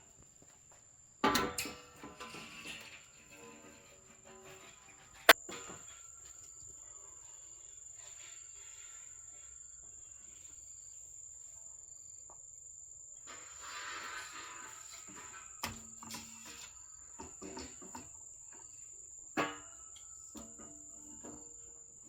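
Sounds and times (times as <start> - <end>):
insects trilling: 5.3 - 22.0.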